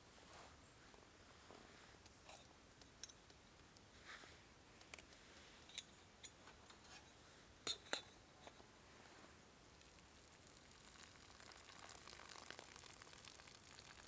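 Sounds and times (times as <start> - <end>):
soft background hiss: 0.0 - 14.0
small clicks and ticks: 4.8 - 5.2.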